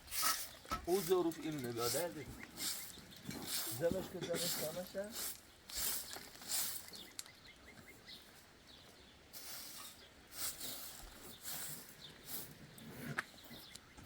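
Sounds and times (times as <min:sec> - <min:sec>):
faint high bird chirps: 0:01.4 - 0:03.4, 0:05.4 - 0:14.0
short hissing swishes: 0:09.4 - 0:12.6.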